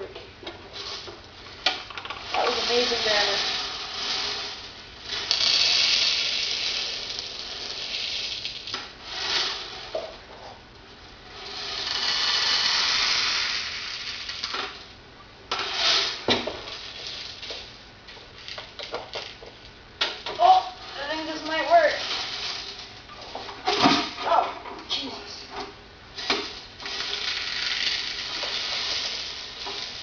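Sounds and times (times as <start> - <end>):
plastic pellets pouring and rattling: 1.9 - 9.9, 11.3 - 14.8, 15.5 - 17.7, 20.4 - 23.0, 26.2 - 30.0.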